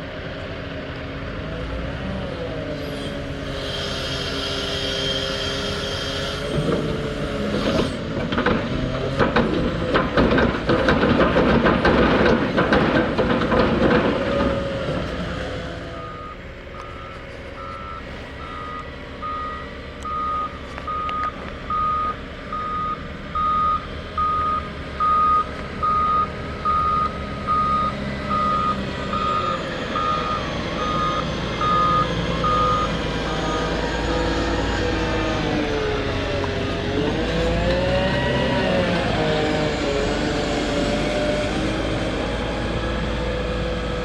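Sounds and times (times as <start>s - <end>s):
diesel engine running: 0.0s - 44.0s
reversing alarm beeping: 15.9s - 35.2s.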